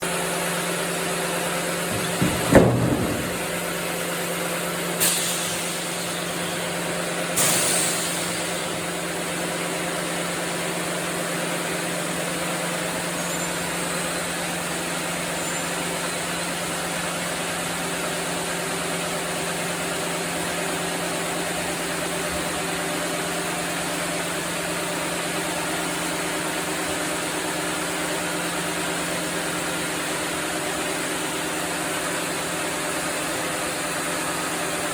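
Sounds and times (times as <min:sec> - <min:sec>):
sawmill machinery humming: 0:00.0 - 0:34.9
knocks: 0:01.9 - 0:03.8.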